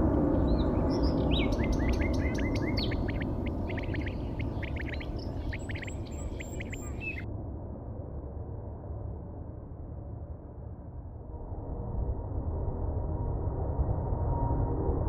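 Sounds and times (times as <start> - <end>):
small birds chirping: 0.4 - 7.2.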